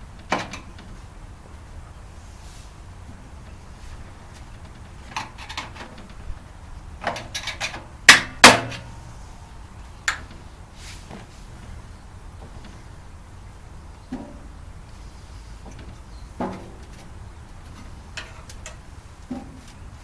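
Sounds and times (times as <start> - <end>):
knocks and clatters of parts: 0.0 - 1.0, 4.3 - 6.4, 7.0 - 8.9, 10.1 - 10.5, 15.6 - 20.0
loud sharp impacts: 8.0 - 8.9.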